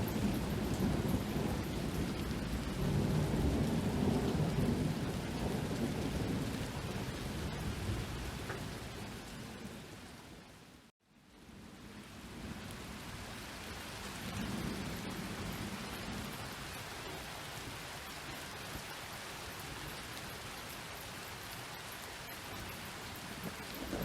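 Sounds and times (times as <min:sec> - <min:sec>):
distant thunder rumble: 0:00.0 - 0:10.2, 0:12.1 - 0:17.8, 0:22.9 - 0:24.0
steady rain falling: 0:00.0 - 0:24.0.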